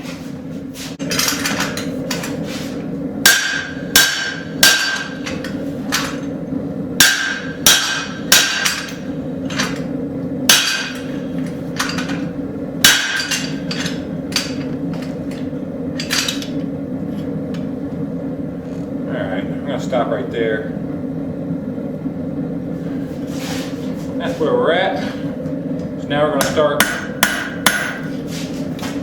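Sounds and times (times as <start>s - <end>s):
steady low hum: 0.0s - 29.0s
hammer striking metal: 3.2s - 6.2s, 7.0s - 9.8s, 10.5s - 11.1s, 12.8s - 14.7s, 26.4s - 28.1s.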